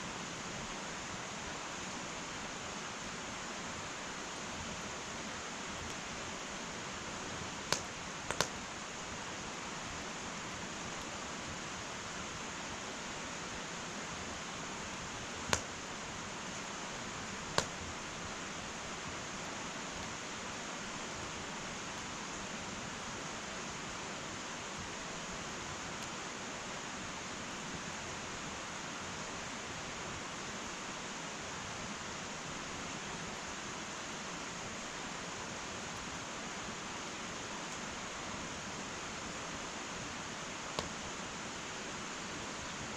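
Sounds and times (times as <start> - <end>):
wood fire hissing: 0.0 - 42.9
fire crackling pops: 7.6 - 8.6, 15.4 - 15.8, 17.4 - 17.9.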